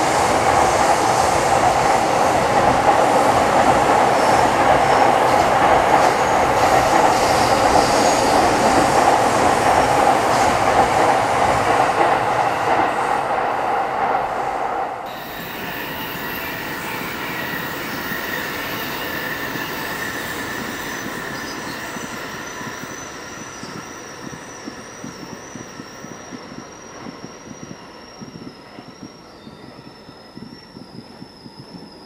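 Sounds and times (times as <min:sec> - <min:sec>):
train rumbling past: 0:00.0 - 0:32.0
high wheel squeal: 0:06.1 - 0:09.0, 0:15.1 - 0:32.0.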